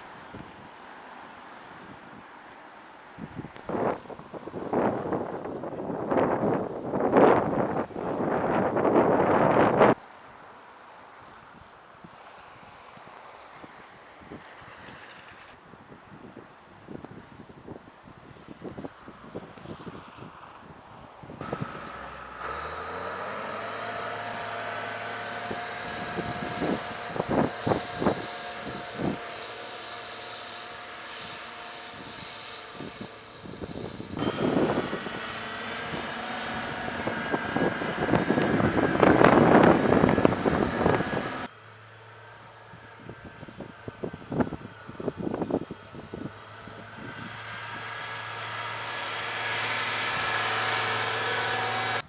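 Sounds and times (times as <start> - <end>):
vehicle engine whining: 21.4 - 52.0.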